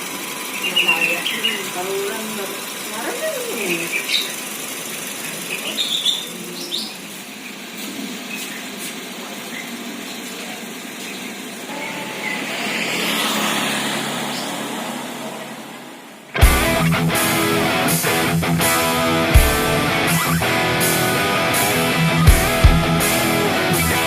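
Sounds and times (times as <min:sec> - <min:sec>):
vehicle passing: 0:10.6 - 0:24.0.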